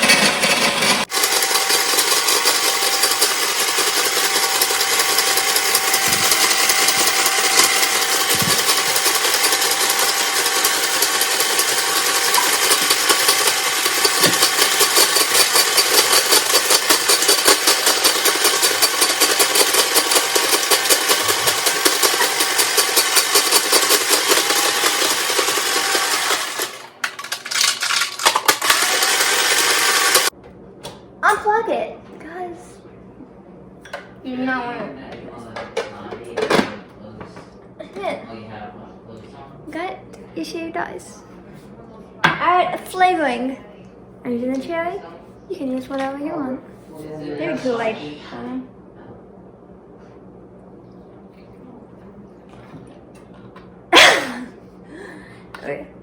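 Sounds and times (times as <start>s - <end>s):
snow cone machine grinding ice: 0.0s - 30.3s.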